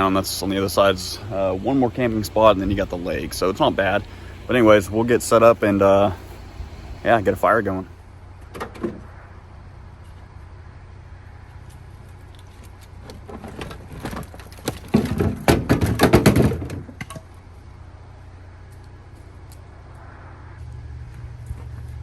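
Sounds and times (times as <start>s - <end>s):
steady low hum: 0.0s - 15.5s, 16.6s - 22.0s
camp gear clattering: 12.4s - 17.4s.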